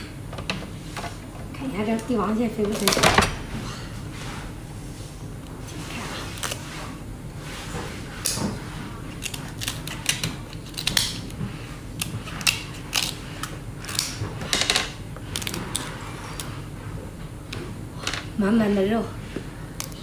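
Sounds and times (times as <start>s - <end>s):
crab shell cracking: 9.2s - 11.4s, 12.0s - 14.2s.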